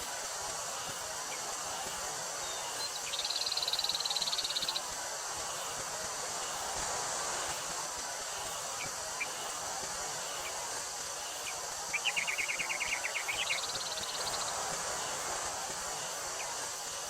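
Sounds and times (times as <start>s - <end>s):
wind through a field: 0.0s - 17.0s
chirps and trill: 2.4s - 4.9s, 11.2s - 14.6s.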